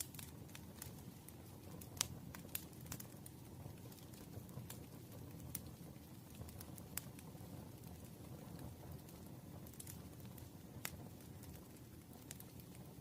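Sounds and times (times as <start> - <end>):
wood crackling pops: 0.0 - 1.2, 1.8 - 4.8, 7.8 - 12.8
rumble of flames: 0.0 - 13.0.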